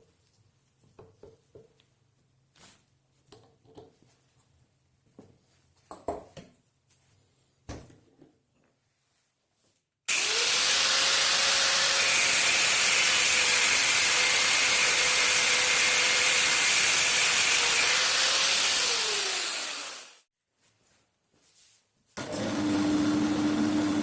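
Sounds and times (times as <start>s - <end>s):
electric power tool whining: 10.1s - 20.2s.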